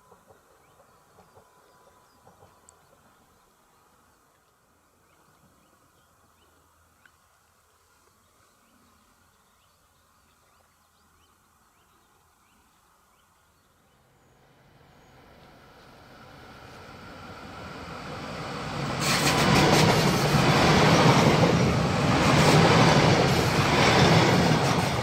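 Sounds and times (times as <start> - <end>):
train rumble: 0.0 - 3.5, 14.5 - 25.0.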